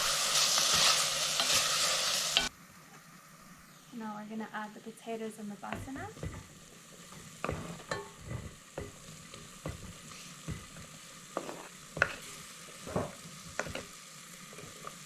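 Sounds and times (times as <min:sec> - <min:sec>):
curry sizzling in a pot: 0:00.0 - 0:15.0
spoon knocking against pot: 0:07.4 - 0:10.8.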